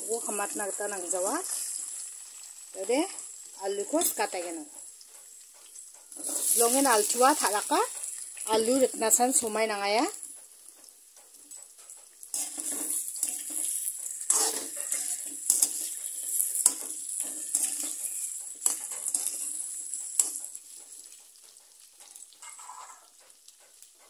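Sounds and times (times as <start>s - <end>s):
potatoes frying in oil: 0.0s - 24.0s
steel spoon scraping a pan: 5.2s - 8.8s, 11.5s - 23.9s.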